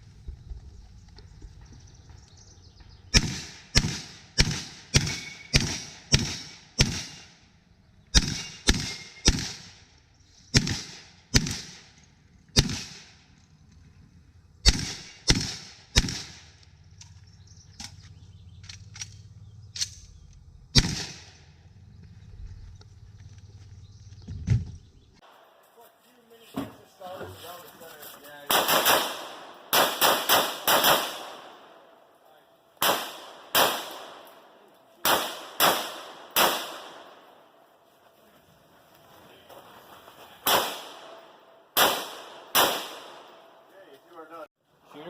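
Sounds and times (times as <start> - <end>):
shotgun shots: 3.1 - 7.4, 8.1 - 9.9, 10.5 - 13.2, 14.6 - 16.6, 20.7 - 21.6, 28.5 - 32.0, 32.8 - 37.5, 40.4 - 43.6.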